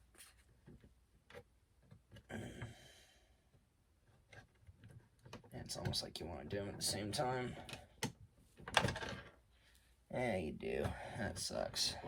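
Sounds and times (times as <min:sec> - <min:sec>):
soft rustle: 0:00.0 - 0:01.0.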